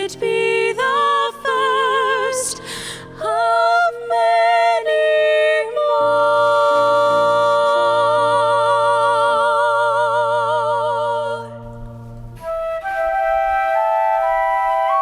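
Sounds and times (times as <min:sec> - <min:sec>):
low sustained accompaniment: 0:06.0 - 0:15.0
flute melody: 0:11.7 - 0:15.0.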